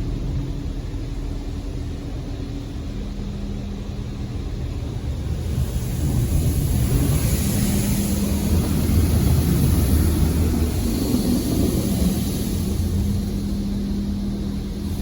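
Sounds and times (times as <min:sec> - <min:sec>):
car wash machinery hum: 0:00.0 - 0:15.0
water jets spraying on car: 0:05.2 - 0:15.0.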